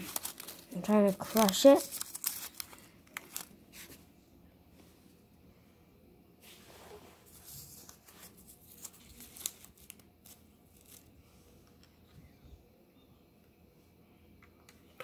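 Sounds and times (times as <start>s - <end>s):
paper and cardboard crinkling: 0.0s - 4.0s, 7.2s - 11.2s.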